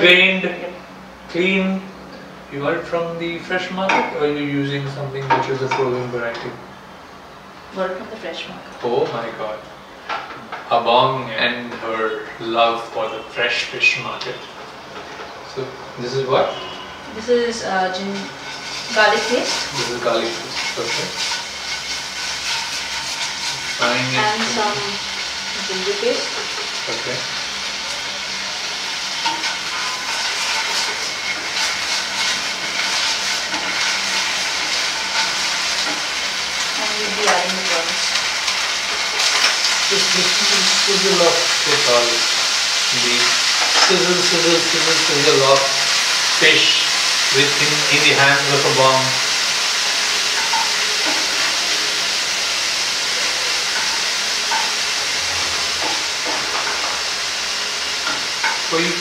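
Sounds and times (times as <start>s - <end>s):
paste sizzling in oil: 16.4s - 59.0s
wooden spatula stirring: 18.2s - 24.6s, 29.0s - 36.8s.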